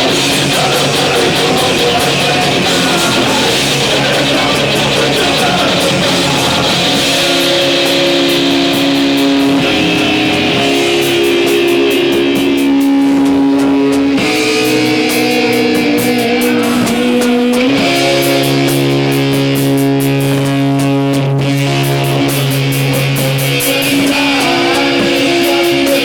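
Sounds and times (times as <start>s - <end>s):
electric guitar chords: 0.0s - 26.0s
steady cymbal beat: 0.0s - 26.0s.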